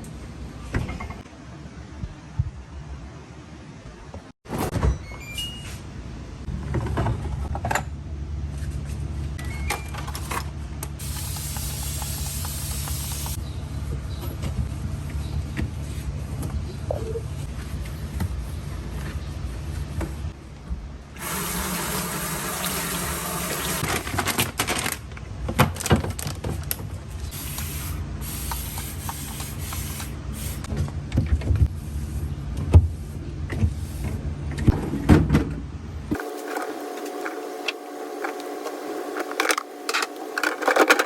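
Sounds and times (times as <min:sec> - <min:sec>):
water running from a tap: 0:21.2 - 0:23.8.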